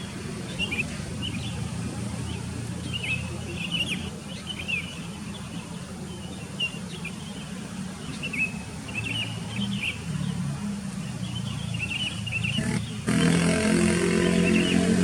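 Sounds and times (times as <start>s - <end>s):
bulbuls chirping: 11.0s - 15.0s.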